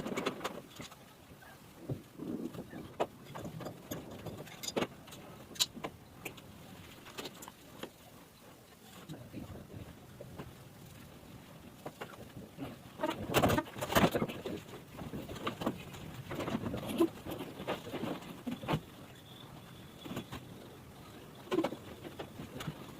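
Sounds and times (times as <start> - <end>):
knocks taps and clatter: 1.8 - 6.5.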